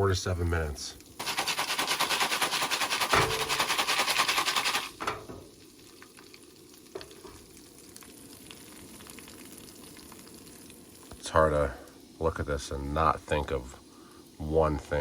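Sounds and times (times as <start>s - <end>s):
faint steady hiss: 0.0s - 15.0s
kernels rattling in foil pan: 1.2s - 5.5s.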